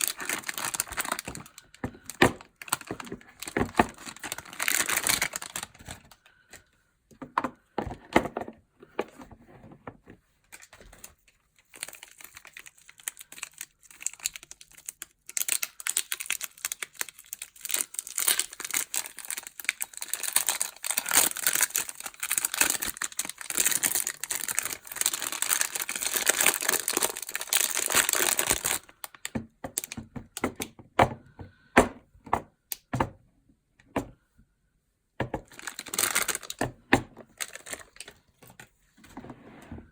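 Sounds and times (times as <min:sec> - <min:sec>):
wrappers crinkling and tearing: 0:00.0 - 0:06.3, 0:10.5 - 0:30.0, 0:35.5 - 0:36.6, 0:37.2 - 0:38.7.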